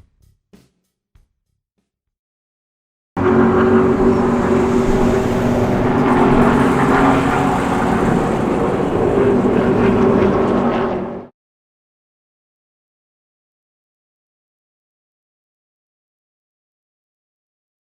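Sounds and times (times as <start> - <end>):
car engine running: 3.2 - 11.2.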